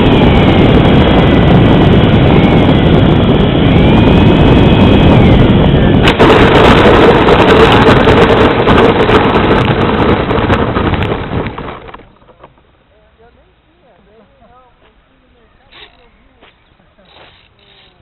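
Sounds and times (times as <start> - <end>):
aircraft engine and airflow noise: 0.0 - 18.0
rough crackling rumble: 0.0 - 18.0
steady hum: 0.0 - 18.0.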